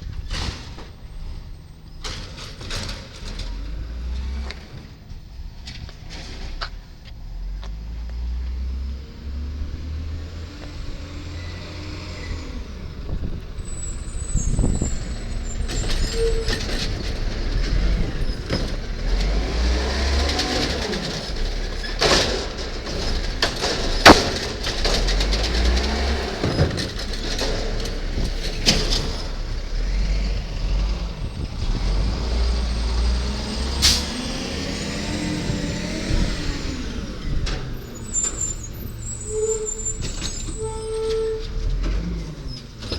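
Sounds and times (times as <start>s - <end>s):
garbage truck engine revving: 0.1s - 42.9s
hydraulic whines: 11.1s - 30.0s, 31.2s - 42.0s
sharp bangs: 22.0s - 27.7s.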